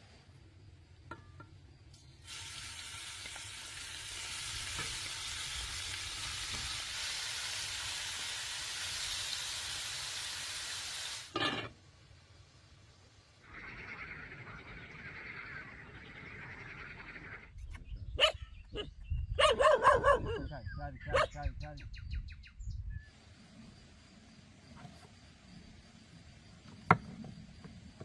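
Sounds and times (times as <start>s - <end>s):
food sizzling in hot oil: 2.2s - 11.7s.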